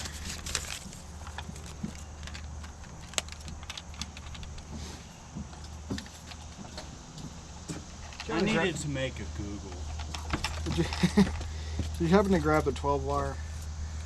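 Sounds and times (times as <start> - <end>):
small parts and tools rattling: 0.0 - 4.8, 7.7 - 8.4, 9.7 - 12.9.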